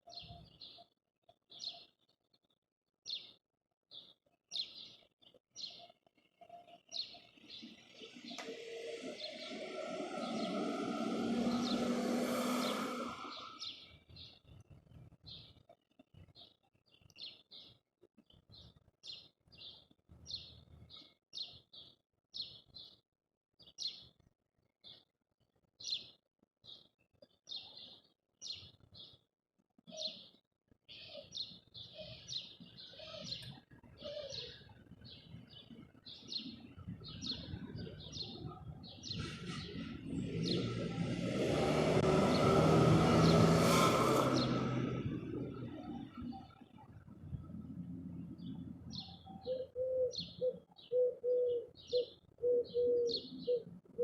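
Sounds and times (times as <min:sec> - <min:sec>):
small birds chirping: 0:00.0 - 0:23.0, 0:25.7 - 0:41.2, 0:44.2 - 0:54.0
low rumble: 0:08.0 - 0:13.9, 0:36.8 - 0:49.3.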